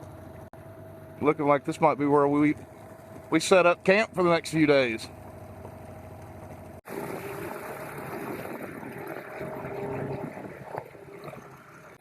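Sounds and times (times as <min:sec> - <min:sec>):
boat engine running: 0:00.0 - 0:12.0
water noise: 0:00.0 - 0:12.0
wind noise: 0:06.9 - 0:11.9.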